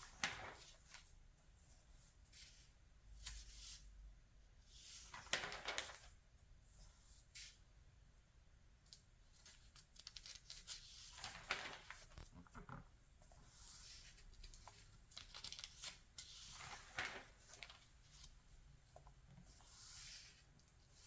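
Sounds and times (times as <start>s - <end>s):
magazine pages turning: 0.1s - 1.1s, 5.0s - 6.2s, 8.9s - 12.8s, 13.5s - 21.0s.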